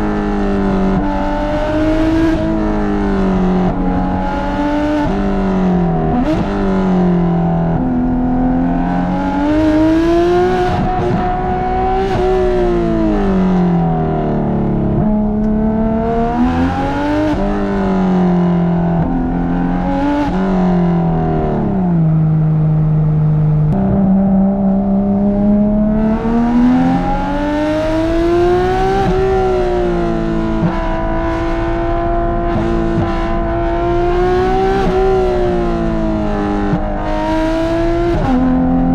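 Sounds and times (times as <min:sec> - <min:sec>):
sports car exhaust accelerating: 0:00.0 - 0:38.9.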